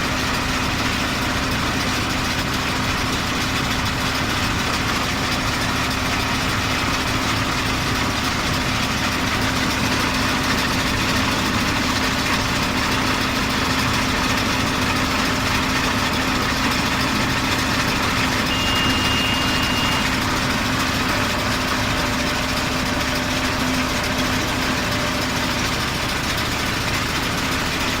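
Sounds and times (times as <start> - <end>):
tractor engine drone: 0.0 - 28.0
high-pitched tone: 18.3 - 23.8.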